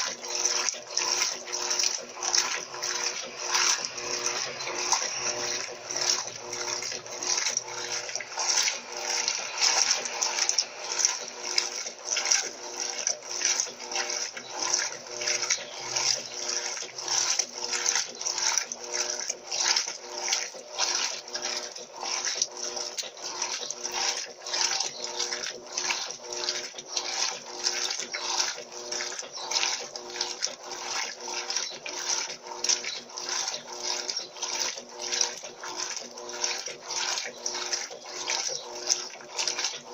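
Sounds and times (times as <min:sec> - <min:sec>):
faint motor hum: 0:00.0 - 0:39.9
water and cloth sloshing: 0:00.0 - 0:39.9.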